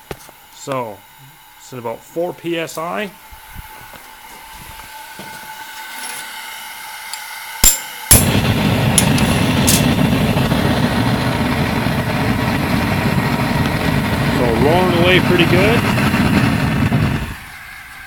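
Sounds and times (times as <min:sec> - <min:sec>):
gas hissing: 0:00.0 - 0:18.0
burner flame roaring: 0:07.6 - 0:18.0.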